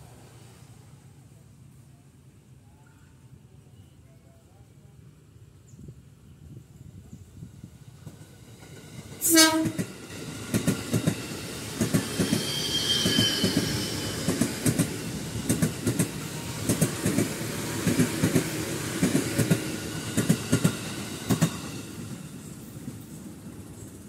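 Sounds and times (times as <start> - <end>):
high wheel squeal: 12.1 - 14.3.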